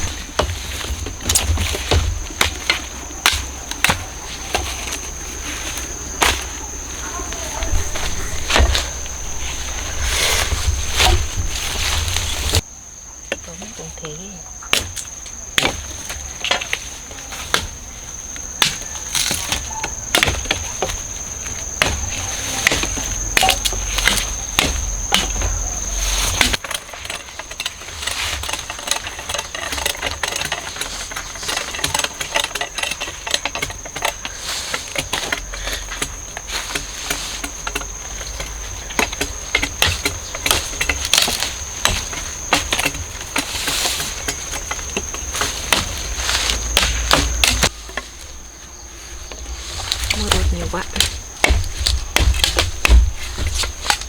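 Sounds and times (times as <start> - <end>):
blade chopping cane stalks: 0.0 - 12.7, 13.3 - 54.0
high insect drone: 0.0 - 54.0.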